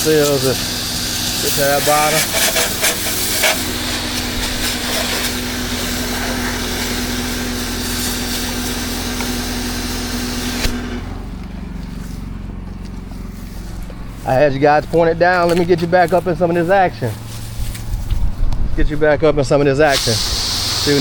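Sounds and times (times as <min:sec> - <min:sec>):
pressure washer spray hissing: 0:00.0 - 0:11.1, 0:19.8 - 0:21.0
pressure washer engine running: 0:00.0 - 0:18.2, 0:19.3 - 0:21.0.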